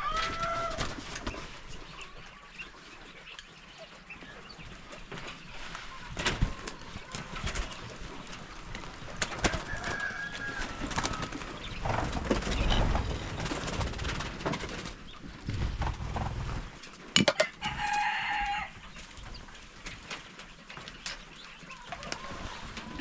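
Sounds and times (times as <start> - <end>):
drawn-out chicken call: 0.0 - 2.4, 9.4 - 13.1, 17.4 - 19.1, 21.6 - 23.0
chickens clucking: 0.0 - 23.0.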